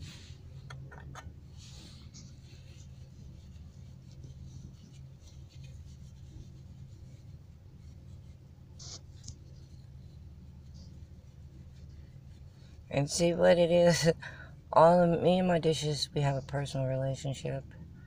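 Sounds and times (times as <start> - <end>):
wipe rustling over dishes: 0.0 - 13.0
low hum: 0.0 - 18.0.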